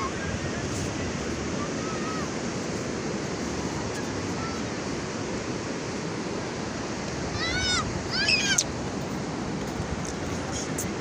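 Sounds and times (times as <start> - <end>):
sea surf washing: 0.0 - 11.0.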